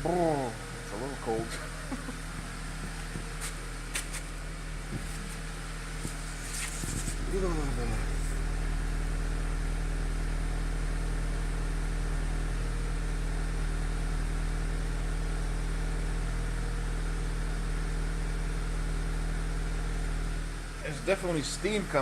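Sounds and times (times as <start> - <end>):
air pump running: 0.0 - 8.5
car engine idling: 0.0 - 22.0.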